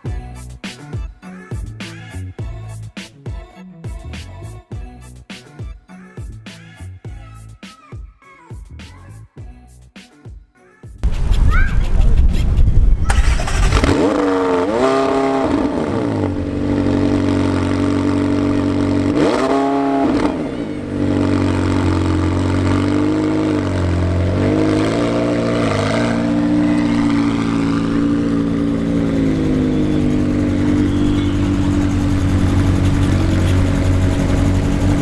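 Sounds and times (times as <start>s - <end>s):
car engine idling and revving: 11.0s - 35.0s.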